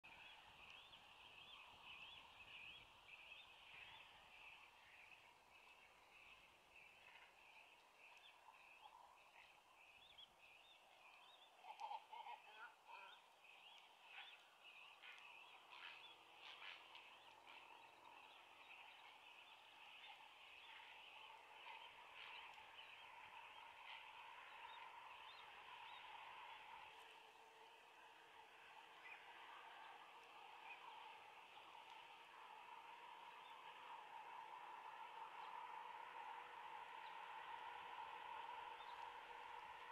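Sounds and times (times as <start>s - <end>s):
chatter of short bird calls: 10.8s - 28.3s.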